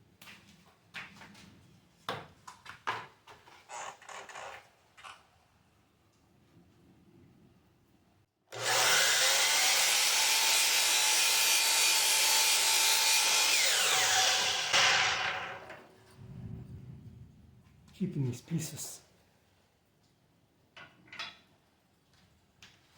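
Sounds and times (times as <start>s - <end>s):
power saw cutting wood: 8.5s - 16.0s.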